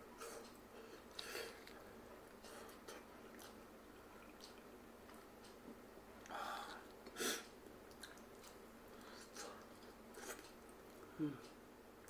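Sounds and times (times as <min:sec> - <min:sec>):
person chewing wetly: 0:01.1 - 0:05.3, 0:07.9 - 0:11.0.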